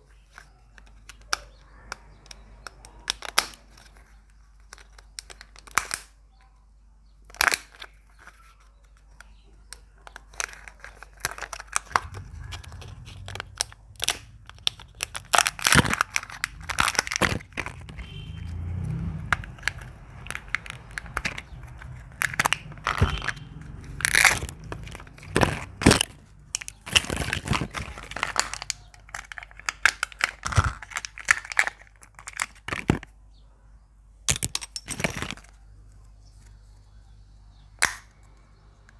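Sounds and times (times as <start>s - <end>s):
egg shells cracking: 10.1s - 33.1s, 34.3s - 35.6s, 37.8s - 38.1s
wrappers crinkling and tearing: 10.2s - 33.0s.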